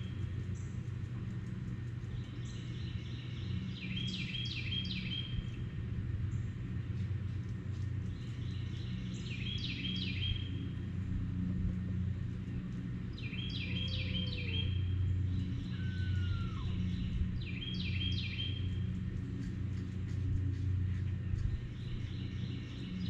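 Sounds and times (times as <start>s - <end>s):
steady low hum: 0.0s - 23.0s
soft low bird call: 15.5s - 17.1s.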